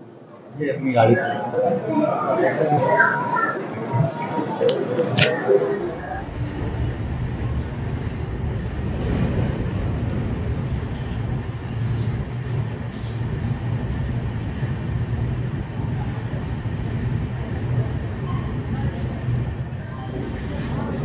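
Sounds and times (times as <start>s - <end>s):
train coaches rumbling: 4.8s - 21.0s
faint high wheel squeals: 6.2s - 8.8s, 10.2s - 13.2s, 19.8s - 20.6s.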